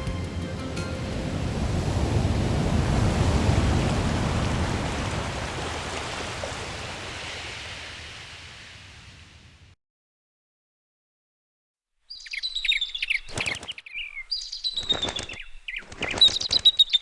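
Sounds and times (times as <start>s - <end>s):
sea waves rushing: 0.0s - 9.7s.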